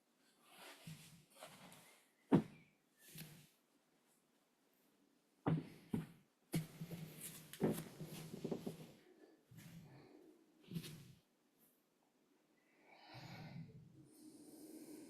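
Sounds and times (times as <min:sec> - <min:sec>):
breathing through the nose: 0:12.9 - 0:15.0.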